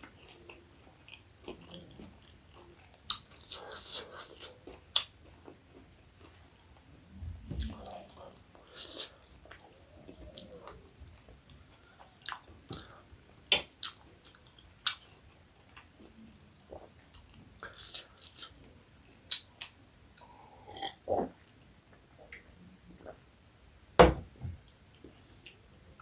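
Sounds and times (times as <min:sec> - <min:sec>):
person chewing: 0:00.0 - 0:06.4, 0:07.5 - 0:15.9.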